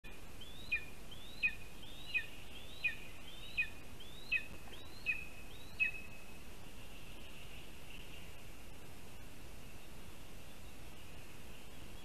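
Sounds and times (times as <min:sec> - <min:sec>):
faint background hiss: 0:00.0 - 0:12.0
bird whistling call: 0:00.4 - 0:06.1.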